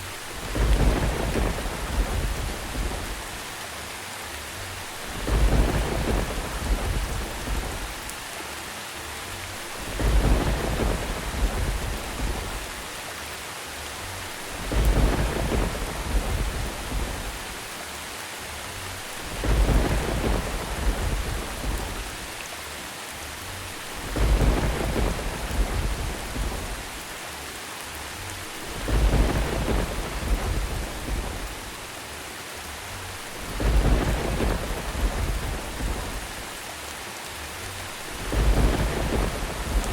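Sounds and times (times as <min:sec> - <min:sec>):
thunder rumbling: 0:00.0 - 0:03.6, 0:04.8 - 0:08.3, 0:09.6 - 0:12.9, 0:14.2 - 0:17.7, 0:19.0 - 0:22.4, 0:23.7 - 0:27.2, 0:28.4 - 0:32.0, 0:33.1 - 0:36.6, 0:37.8 - 0:39.9
steady rain: 0:00.0 - 0:39.9.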